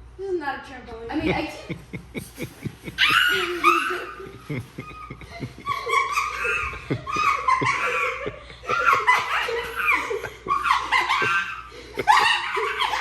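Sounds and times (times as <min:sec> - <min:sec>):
high-pitched laughing: 0:01.3 - 0:13.0.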